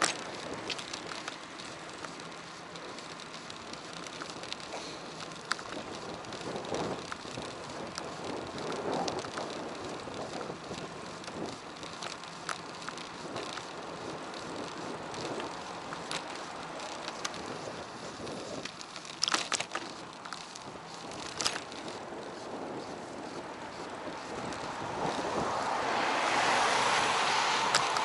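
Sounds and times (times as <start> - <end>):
bicycle tyre and wind noise: 0.0 - 28.0
bike clicks and rattles: 0.0 - 28.0.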